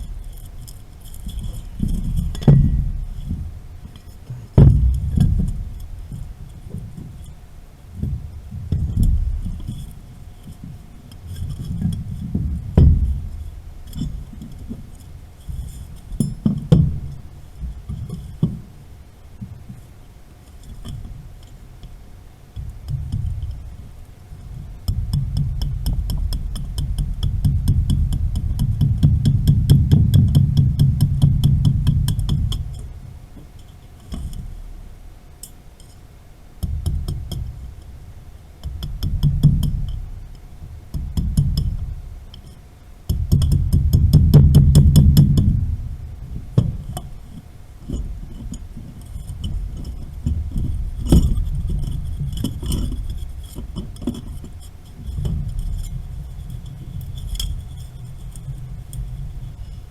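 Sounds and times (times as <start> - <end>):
heavy low rumble: 0.0 - 15.3, 43.2 - 47.2.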